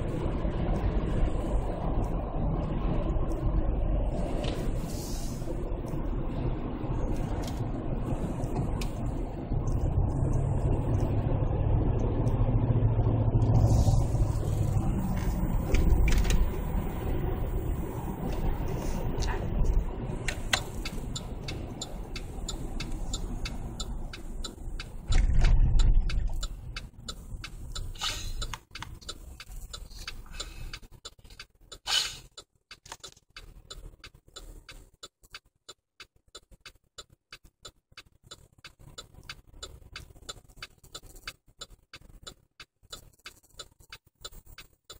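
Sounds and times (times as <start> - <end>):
car engine running: 0.0 - 44.9
fast even ticking: 20.3 - 44.9.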